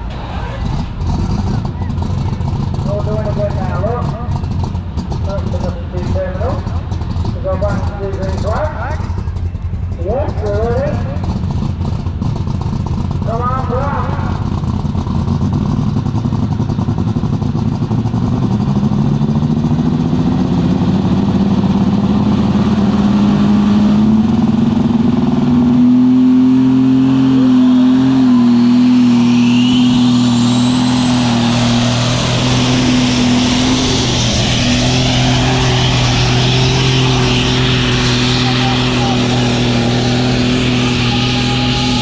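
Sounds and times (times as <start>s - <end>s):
tractor engine running flat out: 0.0s - 42.0s
high whistle: 28.4s - 31.5s.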